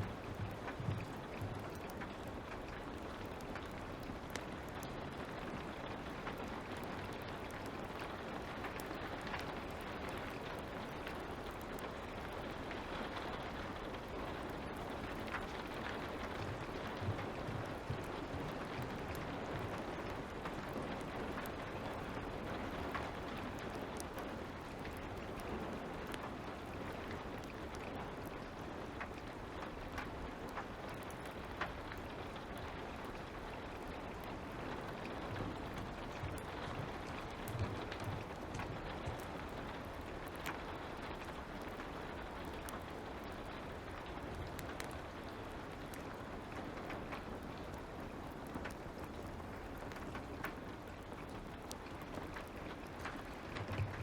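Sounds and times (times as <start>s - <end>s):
light rain falling: 0.0s - 54.0s
fire crackling pops: 0.1s - 54.0s.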